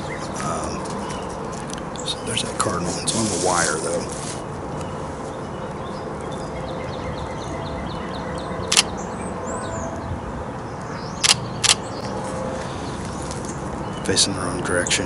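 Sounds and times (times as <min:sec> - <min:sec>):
birds calling: 0:00.0 - 0:15.0
camera shutter firing: 0:08.7 - 0:08.9, 0:11.2 - 0:11.8.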